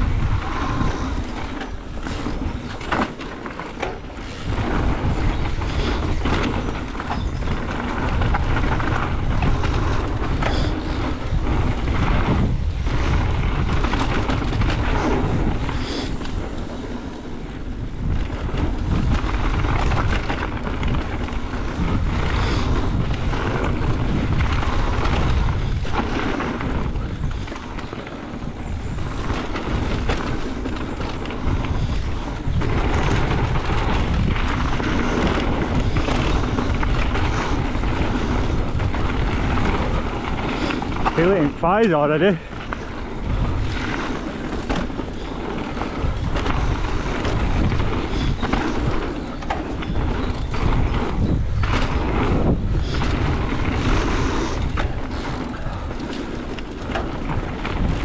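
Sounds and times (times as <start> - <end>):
tyre rumble on dirt: 0.0 - 15.8
bike clattering over bumps: 0.0 - 58.0
wind buffeting microphone: 0.0 - 58.0.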